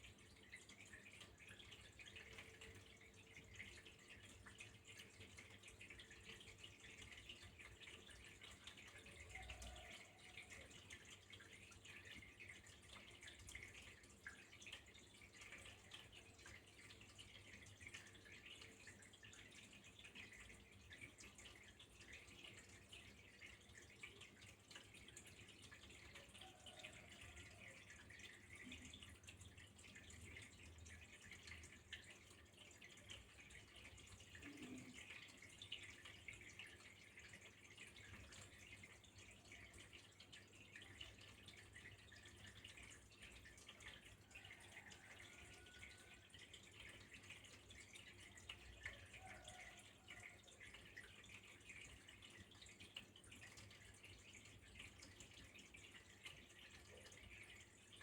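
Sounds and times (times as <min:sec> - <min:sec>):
water trickling and dripping: 0:00.0 - 0:58.0.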